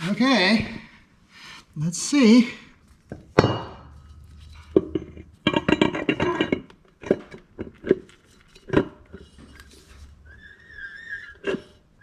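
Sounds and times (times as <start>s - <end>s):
metal clunk and rattle: 3.1s - 9.6s.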